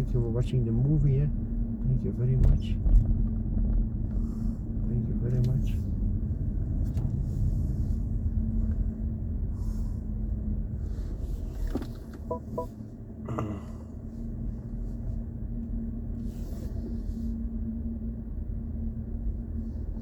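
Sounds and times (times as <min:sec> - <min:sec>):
car road rumble: 0:00.0 - 0:20.0
short electronic beeps: 0:12.3 - 0:12.7.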